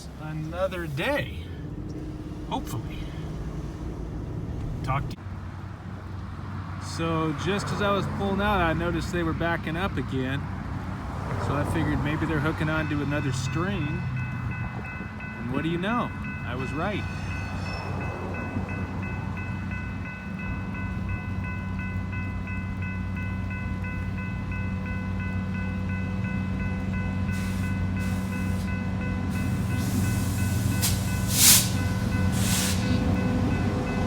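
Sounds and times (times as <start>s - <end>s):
locomotive engine running: 0.0s - 34.0s
air hissing: 27.3s - 33.3s.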